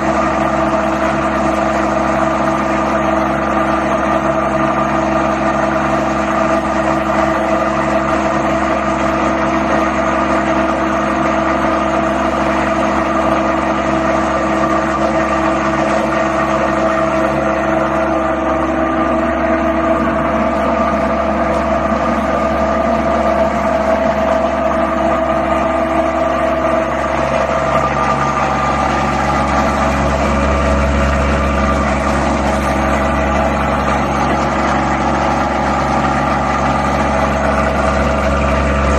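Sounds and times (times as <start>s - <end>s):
machine motor whine and hum: 0.0s - 38.9s
deep rumble: 36.8s - 38.9s.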